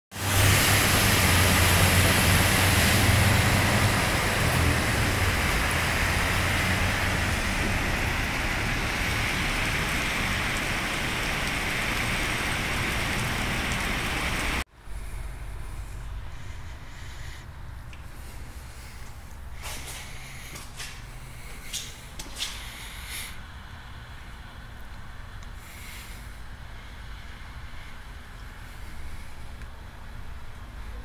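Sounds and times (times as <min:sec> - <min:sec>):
low rumble of traffic: 0:00.1 - 0:31.0
heavy rain hissing: 0:00.2 - 0:14.6, 0:18.3 - 0:24.8.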